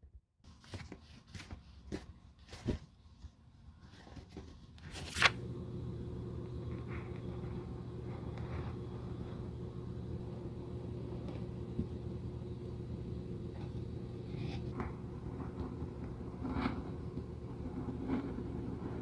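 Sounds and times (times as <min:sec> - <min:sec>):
low motor hum: 0:05.1 - 0:19.0
scraping and rubbing: 0:13.5 - 0:19.0.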